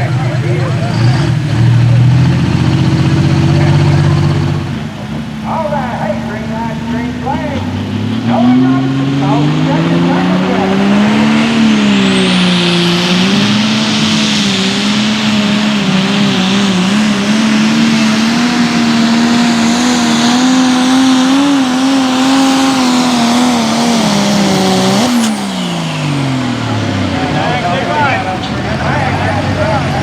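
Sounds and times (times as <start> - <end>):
tractor engine at full throttle: 0.0 - 30.0.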